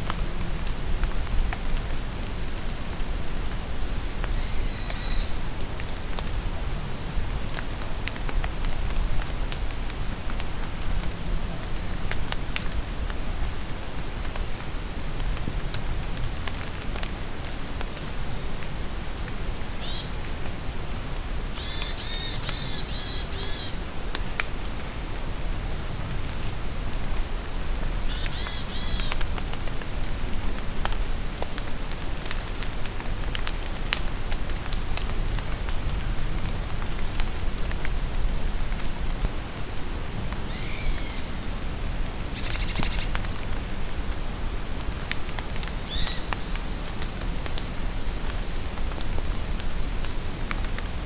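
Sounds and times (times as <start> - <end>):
steady rain: 0.0 - 51.0
bird harsh calls: 21.6 - 23.8, 28.1 - 29.1, 40.5 - 41.5
bird call with sweeping notes: 40.5 - 41.5.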